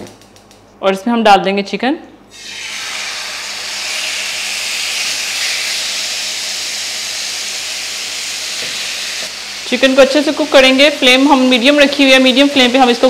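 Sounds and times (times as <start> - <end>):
chicken sizzling in a frying pan: 2.3 - 12.3.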